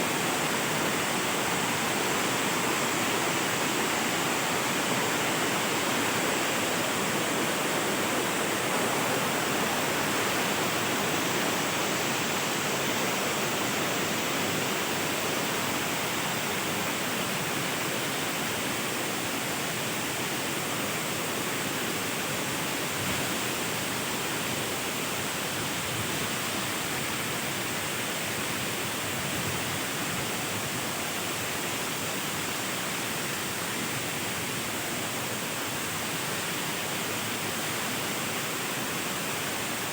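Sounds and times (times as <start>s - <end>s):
waterfall rushing: 0.0s - 20.2s.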